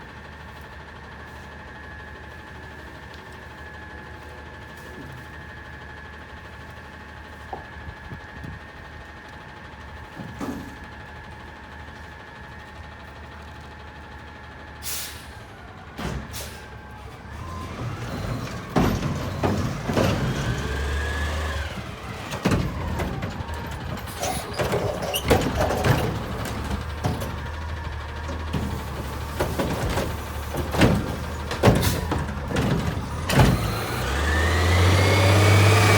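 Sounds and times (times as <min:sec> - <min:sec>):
garbage truck engine and hydraulics: 0:00.0 - 0:35.9
air brake hiss: 0:14.8 - 0:15.5, 0:16.3 - 0:16.8
loud bangs and knocks: 0:17.9 - 0:35.8.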